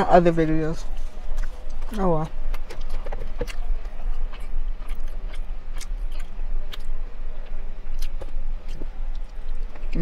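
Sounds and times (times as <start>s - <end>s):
steady low hum: 0.0s - 10.0s
close chewing and mouth clicks: 0.9s - 10.0s.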